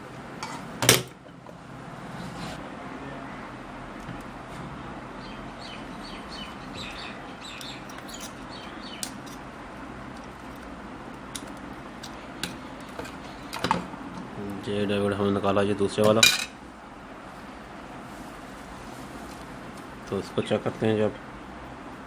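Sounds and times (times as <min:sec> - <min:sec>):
steady background hiss: 0:00.0 - 0:22.0
bird chirping: 0:05.2 - 0:09.2
sharp desoldering clicks: 0:07.0 - 0:09.5, 0:10.1 - 0:13.7.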